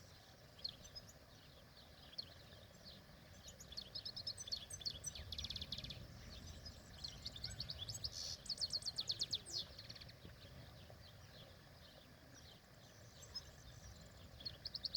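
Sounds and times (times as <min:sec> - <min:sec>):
goldfinch singing: 0:00.0 - 0:14.9.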